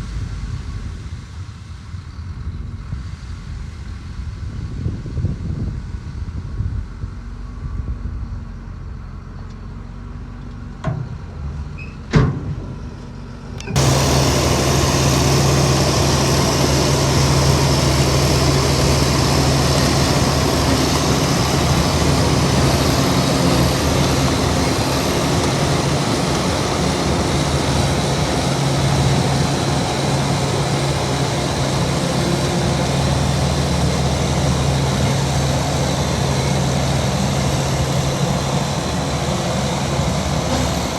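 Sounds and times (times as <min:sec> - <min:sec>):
heavy diesel engine running: 0:12.5 - 0:40.9.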